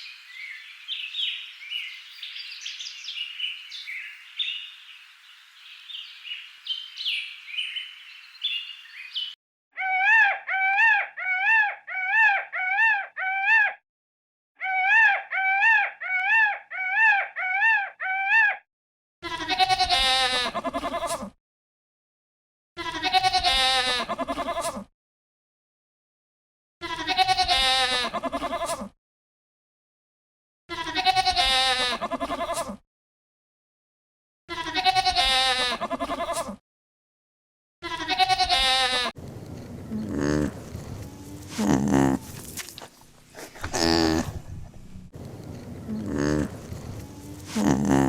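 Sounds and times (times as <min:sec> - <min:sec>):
bleating: 0:19.2 - 0:21.4, 0:22.8 - 0:24.9, 0:26.8 - 0:28.9, 0:30.7 - 0:32.8, 0:34.5 - 0:36.6, 0:37.8 - 0:39.2, 0:39.9 - 0:42.8, 0:43.4 - 0:44.8, 0:45.9 - 0:48.0.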